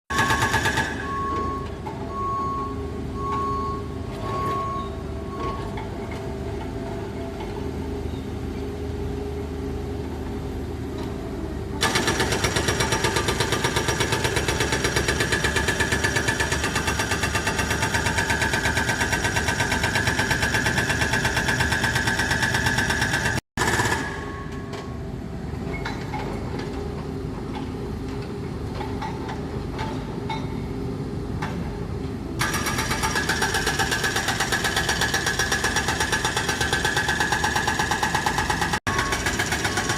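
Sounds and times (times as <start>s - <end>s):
short beeps: 1.0s - 5.7s
hydraulic breaker hammering: 32.4s - 39.9s.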